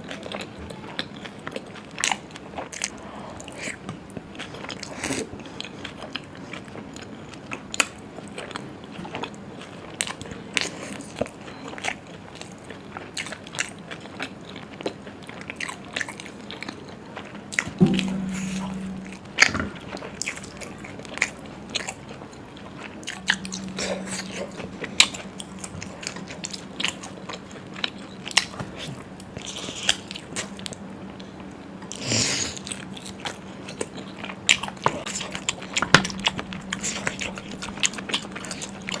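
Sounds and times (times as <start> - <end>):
close-miked chewing and crunching: 0.0 - 39.0
low steady hum: 16.4 - 39.0.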